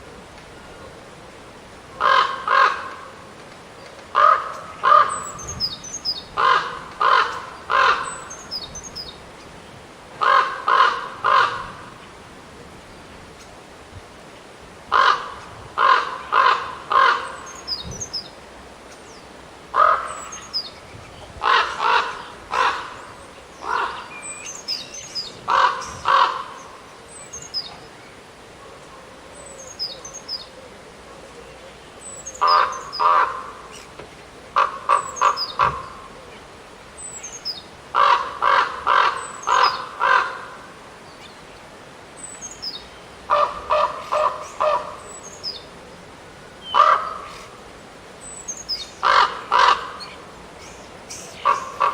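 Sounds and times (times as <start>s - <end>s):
crows cawing: 2.0s - 3.1s, 4.1s - 5.2s, 6.4s - 8.2s, 10.2s - 12.0s, 14.9s - 17.4s, 19.7s - 20.3s, 21.4s - 24.1s, 25.5s - 26.6s, 32.4s - 33.6s, 34.6s - 36.1s, 37.9s - 40.8s, 43.3s - 45.0s, 46.6s - 47.5s, 49.0s - 50.2s, 51.4s - 51.9s.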